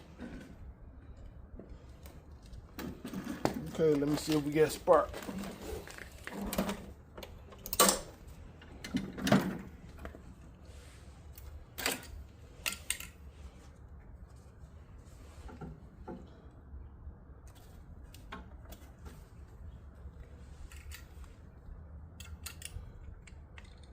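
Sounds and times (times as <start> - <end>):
metal tools clicking and clunking: 11.8 - 13.2, 22.1 - 23.9.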